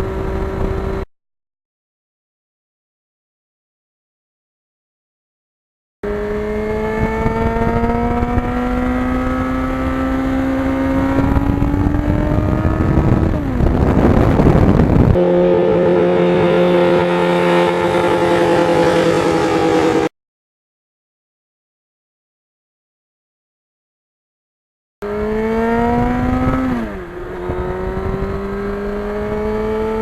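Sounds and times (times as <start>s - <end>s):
motorcycle engine accelerating: 0.0s - 1.1s, 6.0s - 20.1s, 25.0s - 30.0s
wind buffeting microphone: 6.3s - 20.1s, 25.1s - 30.0s.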